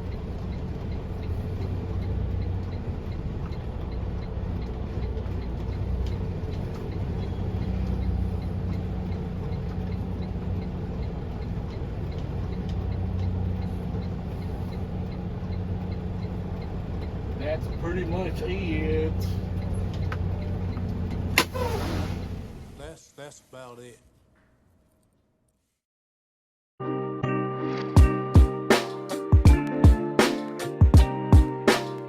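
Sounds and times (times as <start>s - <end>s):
faint ticking: 0.0s - 21.4s
diesel engine droning: 0.0s - 23.3s.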